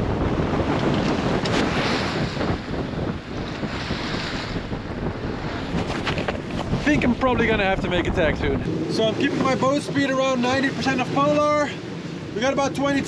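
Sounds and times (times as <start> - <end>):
wind buffeting microphone: 0.0 - 8.9
water rushing along boat hull: 0.0 - 13.0.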